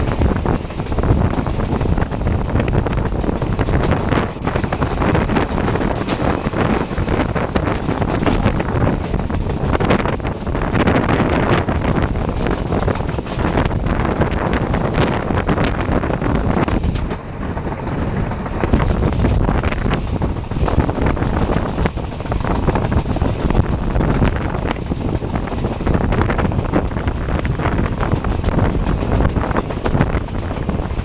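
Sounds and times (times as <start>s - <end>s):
train wheels rumbling: 0.0s - 31.0s
wheels clattering on rails: 0.0s - 31.0s
wind buffeting the microphone: 0.0s - 31.0s.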